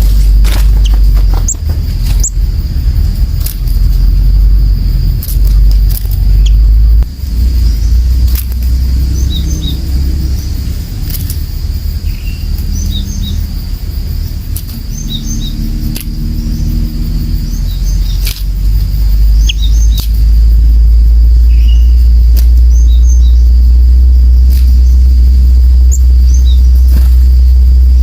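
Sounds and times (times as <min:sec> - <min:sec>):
high-pitched insect drone: 0:00.0 - 0:28.0
low rumble: 0:00.0 - 0:28.0
small birds chirping: 0:00.0 - 0:28.0
sharp clicks: 0:03.4 - 0:04.0, 0:05.2 - 0:06.8, 0:08.2 - 0:08.8, 0:11.0 - 0:11.5, 0:14.5 - 0:14.8, 0:15.8 - 0:16.3, 0:18.0 - 0:18.8, 0:19.4 - 0:20.3, 0:22.2 - 0:22.8.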